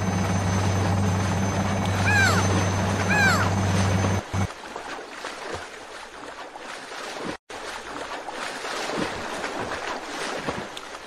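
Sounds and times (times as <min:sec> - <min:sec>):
sea surf splashing: 0:00.6 - 0:04.9.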